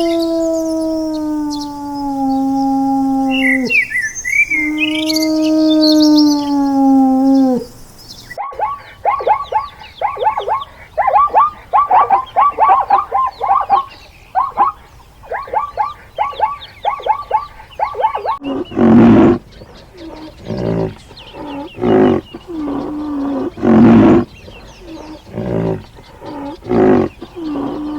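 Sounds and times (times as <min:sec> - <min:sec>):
long pitched animal call: 0:00.0 - 0:07.8, 0:08.4 - 0:19.4
loud harsh animal calls: 0:00.0 - 0:27.9
rapid short chirping calls: 0:03.3 - 0:27.9.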